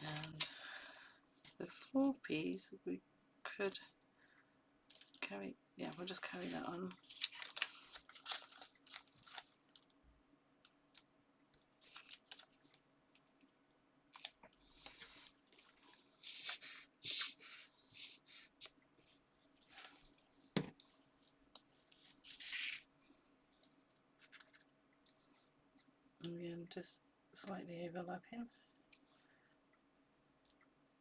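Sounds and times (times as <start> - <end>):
paper and card rustling: 0.0 - 0.6, 5.9 - 9.8, 11.8 - 12.8, 14.8 - 18.7, 21.8 - 22.9.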